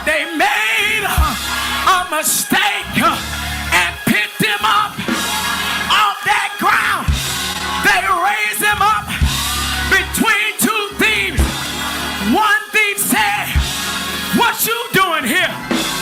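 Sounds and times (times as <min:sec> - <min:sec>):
person singing: 0:00.0 - 0:13.8
heavy low beats: 0:00.9 - 0:06.0, 0:07.0 - 0:10.3, 0:10.9 - 0:12.4.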